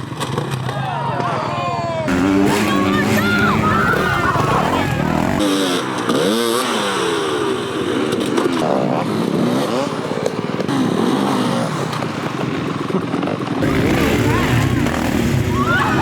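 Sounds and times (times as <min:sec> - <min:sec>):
off-road motorcycle engines revving: 0:02.0 - 0:16.0.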